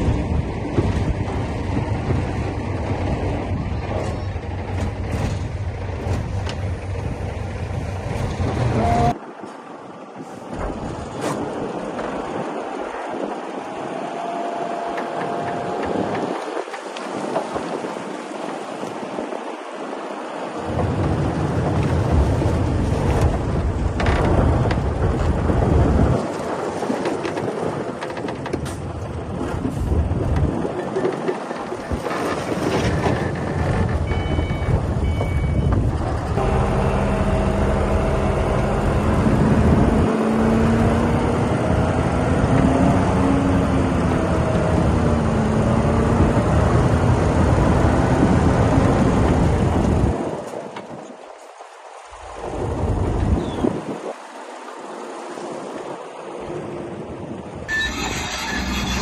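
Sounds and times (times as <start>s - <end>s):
diesel machinery engine rumble: 0.0s - 9.2s, 32.9s - 50.1s, 57.7s - 59.0s
engine revving: 36.3s - 48.2s.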